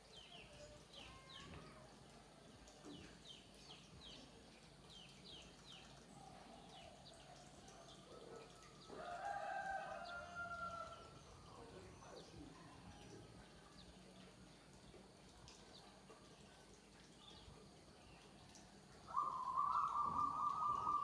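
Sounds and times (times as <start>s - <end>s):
birds chirping: 19.1s - 21.0s
long low bird call: 19.1s - 21.0s.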